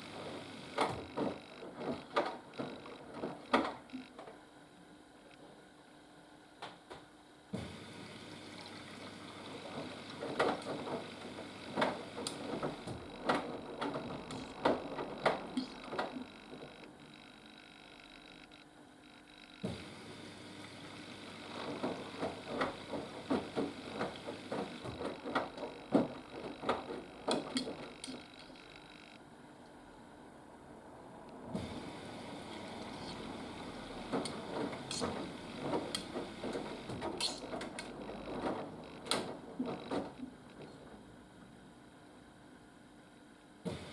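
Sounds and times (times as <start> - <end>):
washing machine drum turning: 8.5 - 17.0, 21.2 - 28.4, 31.4 - 40.5
laundry tumbling and knocking: 9.5 - 16.7, 21.2 - 28.0, 31.4 - 40.5.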